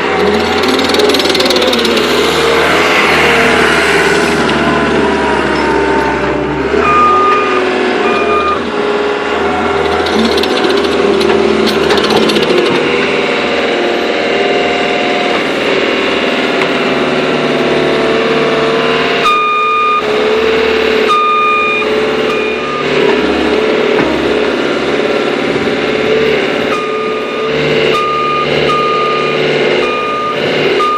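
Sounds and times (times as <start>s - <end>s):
diesel engine running: 0.0s - 30.9s
reversing alarm beeps: 6.8s - 8.6s, 19.2s - 20.1s, 21.0s - 23.5s, 26.7s - 30.9s.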